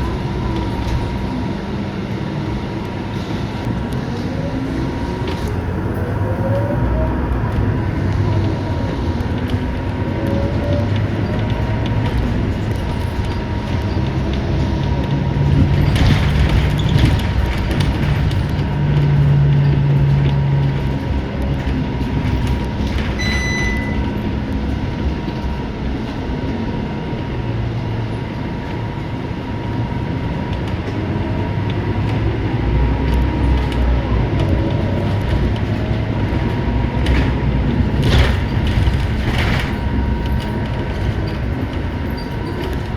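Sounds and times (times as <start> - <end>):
bus engine droning: 0.0 - 42.9
road and body noise: 0.0 - 42.9
short beep: 23.2 - 24.1.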